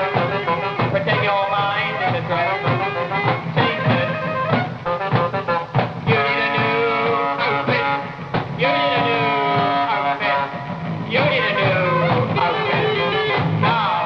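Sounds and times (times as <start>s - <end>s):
drum hits: 0.0s - 14.0s
rock band music: 0.0s - 14.0s.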